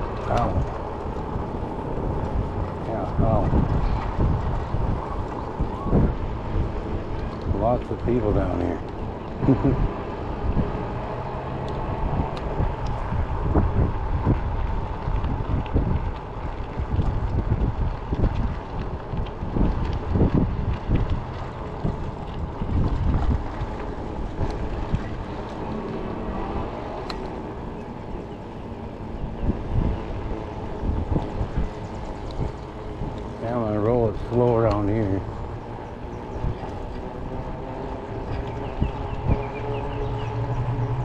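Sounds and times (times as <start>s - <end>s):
low rumble of e-bike riding: 0.0s - 41.0s
wind buffeting microphone: 0.0s - 41.0s.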